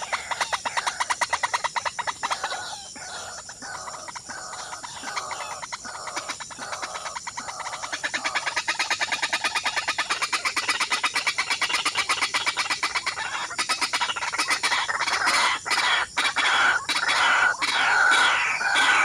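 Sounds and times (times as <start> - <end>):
birds clucking calls: 0.0 - 19.0.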